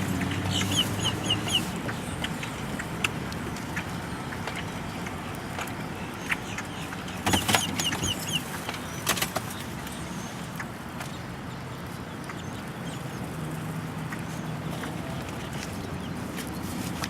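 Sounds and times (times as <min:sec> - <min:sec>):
car engine humming: 0:00.0 - 0:11.7
bird chirping: 0:00.1 - 0:02.9, 0:05.9 - 0:10.4.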